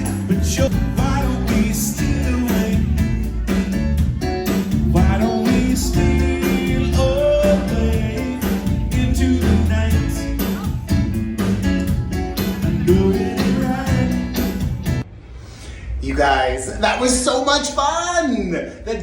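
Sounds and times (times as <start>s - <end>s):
person singing: 0.0s - 3.8s, 4.8s - 11.6s, 12.6s - 14.7s
guitar: 0.0s - 15.1s
steady beat: 0.0s - 15.1s
low bass notes: 0.0s - 15.3s.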